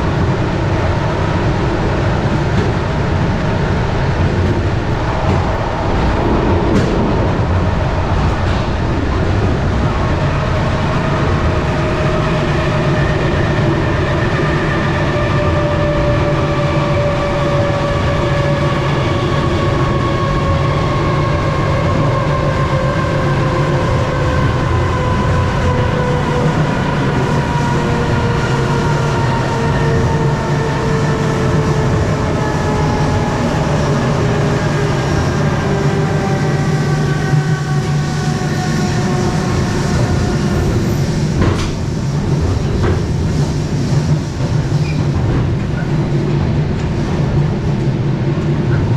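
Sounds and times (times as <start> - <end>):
train carriage rumble: 0.0 - 48.9.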